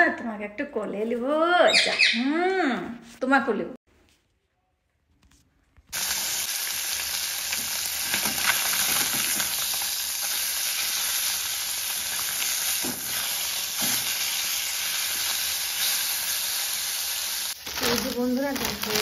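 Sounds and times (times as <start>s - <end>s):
food sizzling in a pan: 5.9s - 19.0s.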